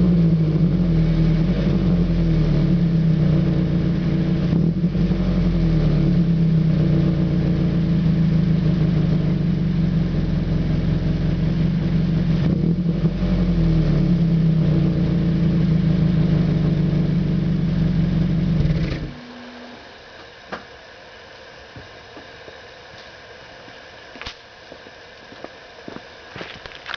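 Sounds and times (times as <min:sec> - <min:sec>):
car engine running: 0:00.0 - 0:20.2.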